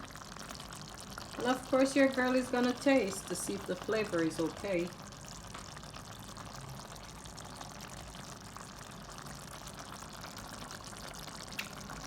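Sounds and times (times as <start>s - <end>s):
pot simmering with faint bubbling: 0.0s - 12.0s.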